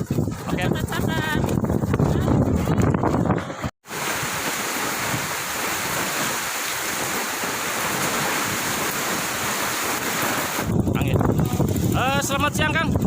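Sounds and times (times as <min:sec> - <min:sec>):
strong wind blowing: 0:00.0 - 0:13.0
sea: 0:03.8 - 0:10.8.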